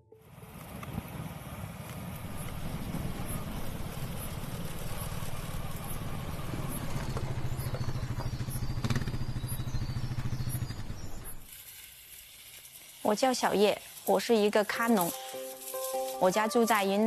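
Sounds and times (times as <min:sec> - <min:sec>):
vehicle engine humming: 0:00.0 - 0:11.5.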